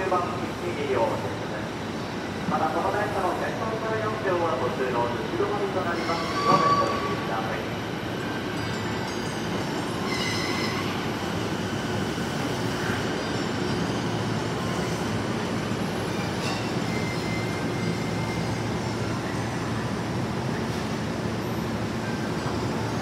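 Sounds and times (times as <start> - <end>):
electric train braking to a stop: 5.9 - 7.3, 8.3 - 15.1, 16.3 - 19.7
high brake squeals: 6.0 - 7.2, 10.0 - 11.0, 16.4 - 18.7.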